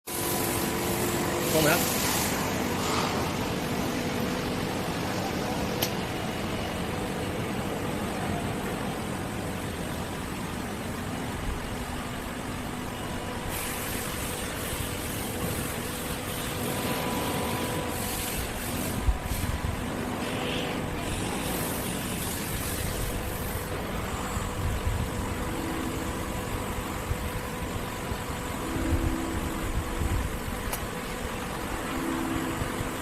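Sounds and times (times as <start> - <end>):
hiss: 0.1 - 3.3, 13.5 - 19.6, 20.2 - 23.8
faint hum: 0.1 - 33.0
machine shop machinery noise: 0.1 - 33.0
sharp click: 5.8 - 6.0.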